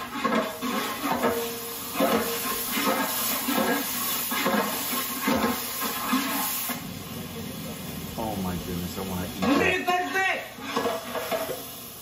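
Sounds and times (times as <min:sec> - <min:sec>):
ladle stirring in pot: 0:00.0 - 0:06.4
vegetables sizzling in hot oil: 0:00.0 - 0:12.0.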